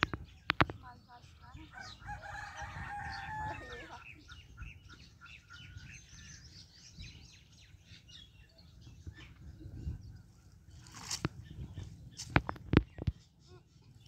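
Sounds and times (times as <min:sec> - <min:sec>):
small birds chirping: 0:00.0 - 0:14.0
rooster crowing: 0:01.8 - 0:04.0.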